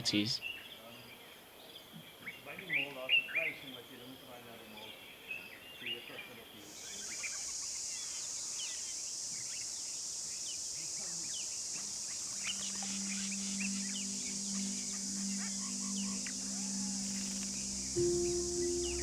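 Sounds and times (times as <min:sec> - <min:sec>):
high-pitched insect buzzing: 0:11.1 - 0:19.0
bird chirps: 0:11.8 - 0:19.0
low steady hum: 0:12.3 - 0:19.0.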